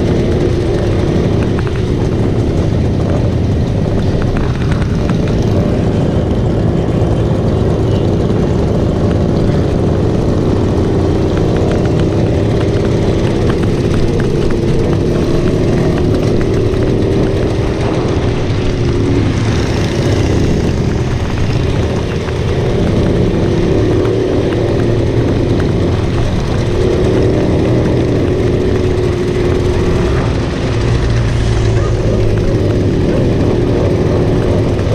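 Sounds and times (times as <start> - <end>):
motorcycle engine running: 0.0 - 34.9
wind and road noise: 0.0 - 34.9.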